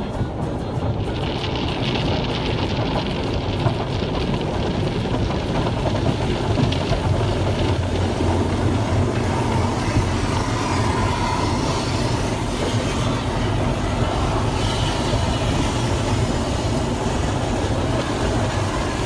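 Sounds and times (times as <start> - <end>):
car wash machinery rumble: 0.0 - 19.0.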